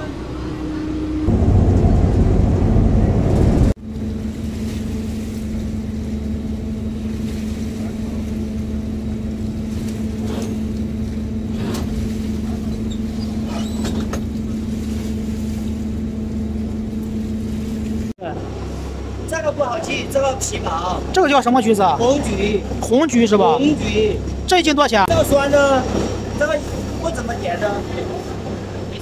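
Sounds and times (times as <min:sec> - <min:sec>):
boat engine droning: 0:00.0 - 0:29.0
loud rushing noise: 0:00.6 - 0:03.8.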